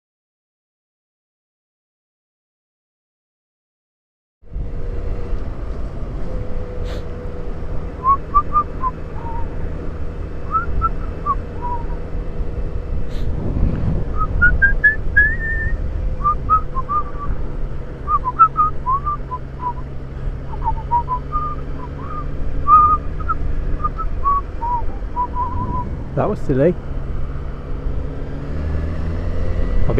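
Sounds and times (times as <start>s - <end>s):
motorcycle engine drone: 4.4s - 29.9s
person whistling a tune: 8.0s - 9.5s, 10.5s - 12.0s, 14.2s - 17.3s, 18.1s - 19.8s, 20.5s - 25.9s
wind noise: 10.4s - 29.9s.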